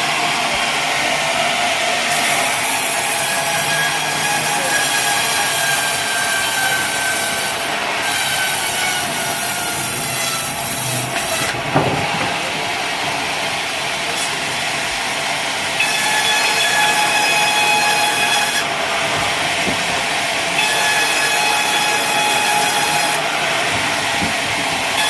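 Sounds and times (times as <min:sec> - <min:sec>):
sawmill blade cutting log: 0:00.0 - 0:15.0, 0:15.7 - 0:25.0.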